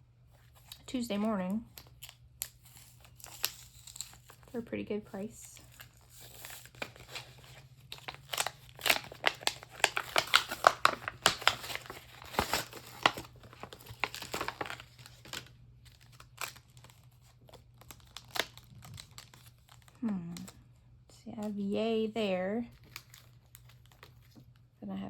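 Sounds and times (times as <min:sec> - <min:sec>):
plastic sheet crinkling and rustling: 0:00.4 - 0:20.6, 0:22.2 - 0:24.6.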